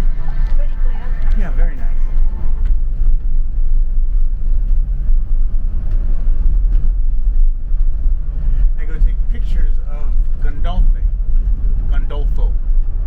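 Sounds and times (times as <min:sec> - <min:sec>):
loud low rumble: 0:00.0 - 0:13.0.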